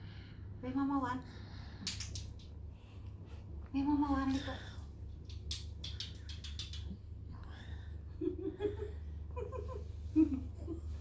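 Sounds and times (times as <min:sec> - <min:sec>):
low electrical hum: 0:00.0 - 0:11.0
person laughing: 0:08.2 - 0:11.0.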